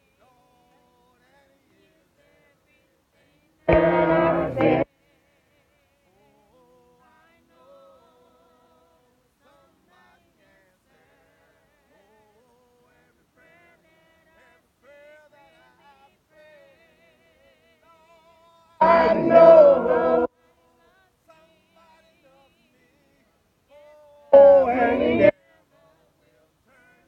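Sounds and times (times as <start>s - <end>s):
close-by voice: 0.0s - 5.0s, 17.7s - 27.0s
congregation singing a hymn: 3.6s - 4.9s, 18.8s - 20.3s, 24.3s - 25.3s.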